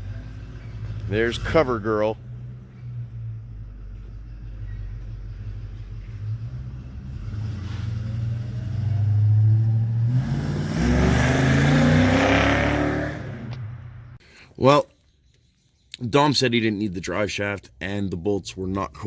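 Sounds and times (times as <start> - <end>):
car engine revving: 5.2 - 14.2.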